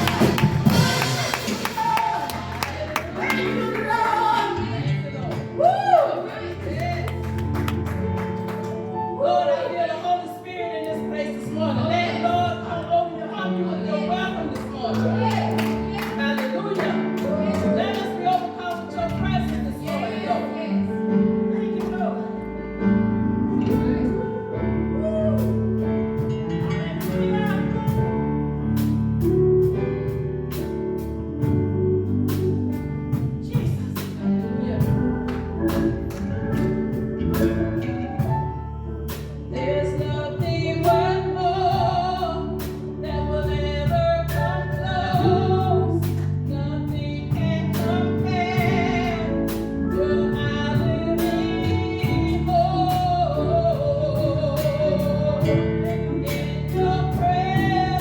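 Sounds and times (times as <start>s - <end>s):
steady drum beat: 0.0s - 5.7s, 32.3s - 41.0s
worship band playing: 0.0s - 58.0s.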